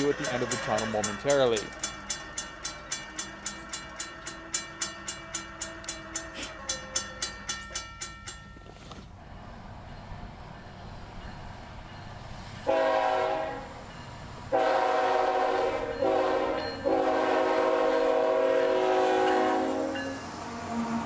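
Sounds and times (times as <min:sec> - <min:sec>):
locomotive air horn blasts: 0:12.7 - 0:13.7, 0:14.5 - 0:21.0.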